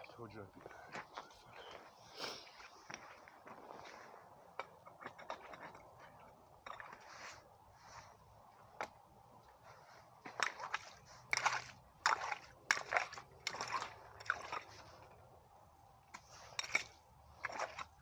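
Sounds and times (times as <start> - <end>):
water and mud splashing: 9.9 - 15.2, 16.2 - 18.0.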